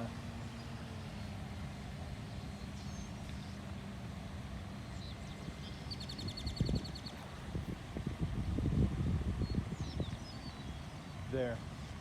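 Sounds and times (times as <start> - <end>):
electric model plane motor drone: 0.0 - 5.9
gusting wind: 0.0 - 12.0.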